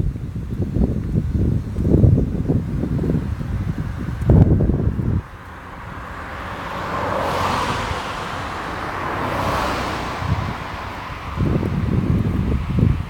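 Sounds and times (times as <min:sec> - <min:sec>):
wind buffeting microphone: 0:00.0 - 0:13.0
vehicle passing: 0:02.7 - 0:13.0.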